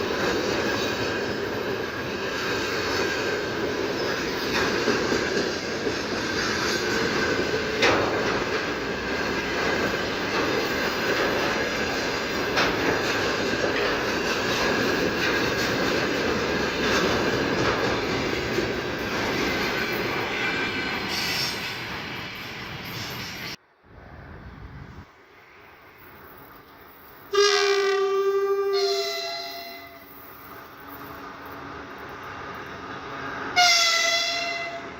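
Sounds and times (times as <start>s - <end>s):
train wheels rumbling on rails: 0.0s - 34.9s
clacks over rail joints: 0.1s - 20.8s.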